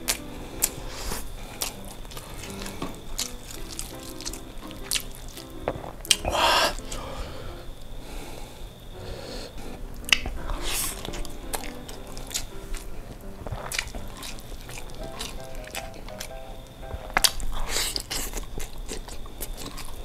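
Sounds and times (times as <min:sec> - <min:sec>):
chewing and wet mouth clicks: 0:00.0 - 0:06.2, 0:10.1 - 0:16.4, 0:17.2 - 0:20.0
soft background music: 0:00.0 - 0:17.8
loud breathy noise: 0:00.3 - 0:03.2, 0:06.2 - 0:11.2.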